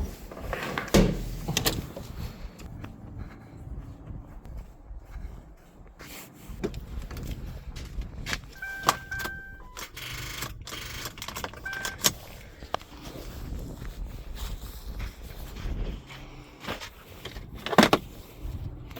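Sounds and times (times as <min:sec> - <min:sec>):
handling clicks and rattles: 0:06.6 - 0:12.9
short electronic beeps: 0:08.6 - 0:11.0, 0:11.6 - 0:12.1.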